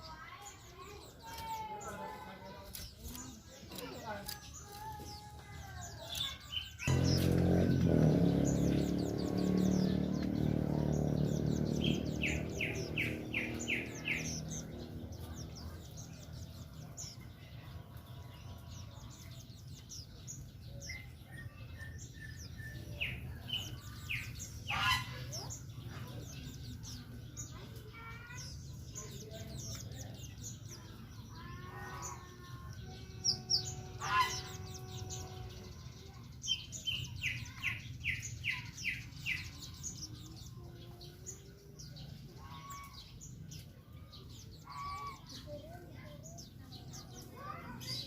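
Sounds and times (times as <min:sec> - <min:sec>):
small birds chirping: 0:00.0 - 0:48.0
loud low hum: 0:06.9 - 0:16.7.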